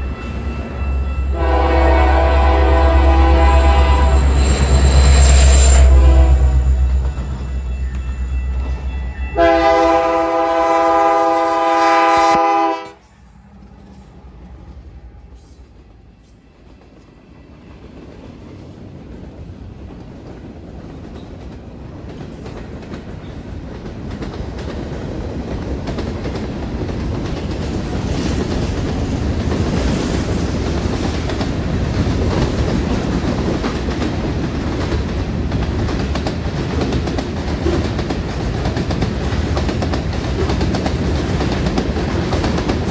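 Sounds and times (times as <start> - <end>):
train wheels on rails: 0.0 - 42.9
locomotive air horn blast: 1.3 - 6.9, 9.4 - 13.1.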